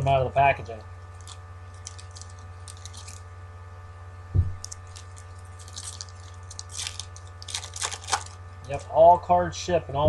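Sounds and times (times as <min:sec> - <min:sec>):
foil wrappers crinkling and tearing: 0:01.1 - 0:03.3, 0:04.6 - 0:09.0
dull thump: 0:04.3 - 0:04.6.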